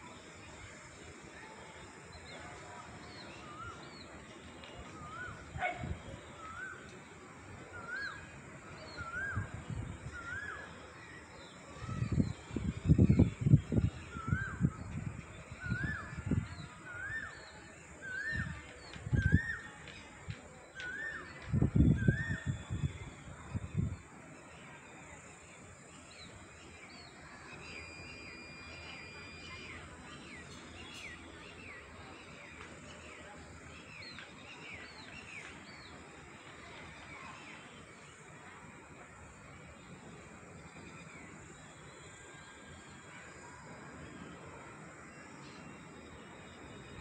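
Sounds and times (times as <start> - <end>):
bird whistled call: 7.7 - 9.5, 10.1 - 10.8, 11.8 - 14.9, 15.5 - 19.8, 20.8 - 23.1, 27.4 - 33.2
long whistled bird note: 27.6 - 29.9.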